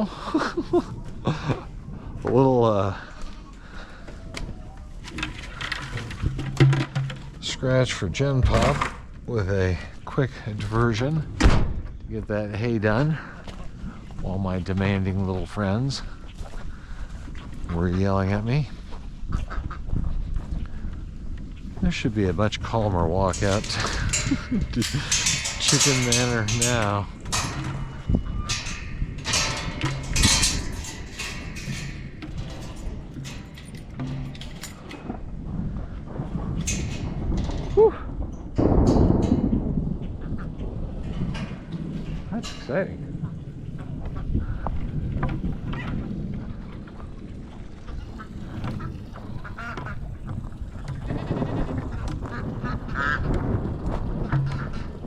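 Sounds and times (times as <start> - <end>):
wind rumble on microphone: 0.0 - 55.0
scuffing footsteps outdoors: 13.2 - 17.8, 18.7 - 21.9
ducks quacking: 19.3 - 20.1, 47.9 - 50.2, 51.9 - 53.3.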